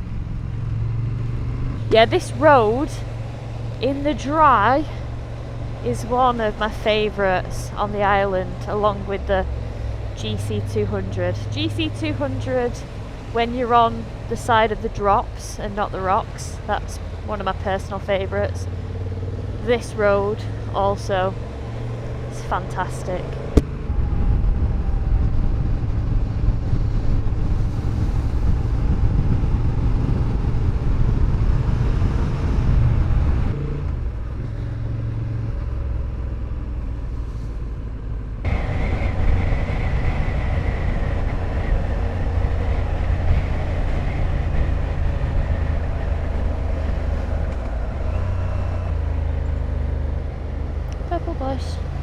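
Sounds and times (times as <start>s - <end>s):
motorcycle engine rumbling: 0.0s - 52.0s
wind rush: 23.4s - 35.8s, 37.0s - 49.0s.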